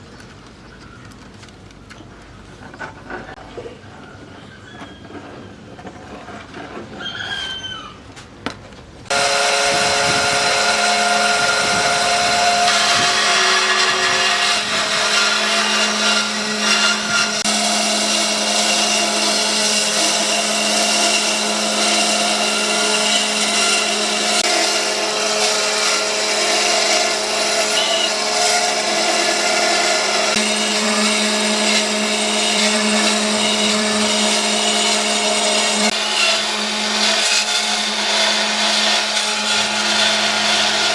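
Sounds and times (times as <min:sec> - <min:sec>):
electric power tool cutting wood: 0:09.1 - 0:40.9.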